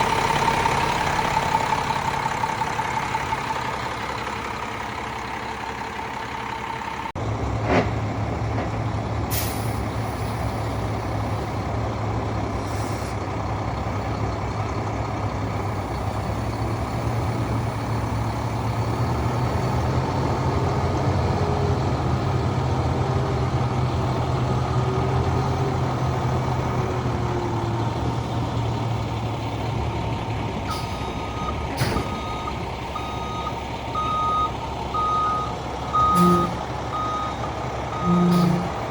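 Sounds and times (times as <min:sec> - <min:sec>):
truck diesel engine running: 0:00.0 - 0:38.9
air brake hisses: 0:09.3 - 0:10.7, 0:12.6 - 0:13.2
reversing beeper: 0:30.7 - 0:38.8.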